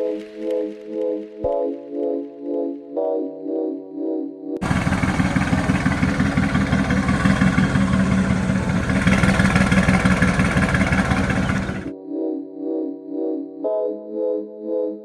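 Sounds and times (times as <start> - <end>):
sports car engine running: 4.6 - 11.9.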